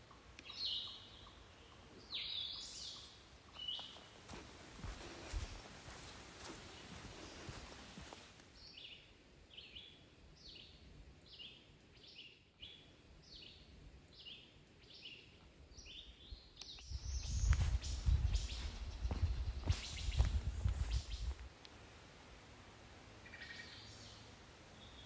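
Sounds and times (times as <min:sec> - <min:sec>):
footsteps crunching on dirt trail: 0:02.9 - 0:08.6, 0:16.9 - 0:21.5.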